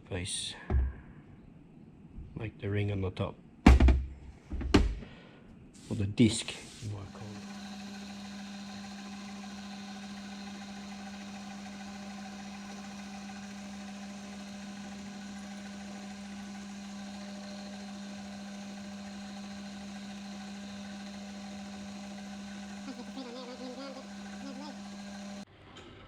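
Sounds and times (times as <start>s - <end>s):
metal lathe humming: 6.6s - 25.5s.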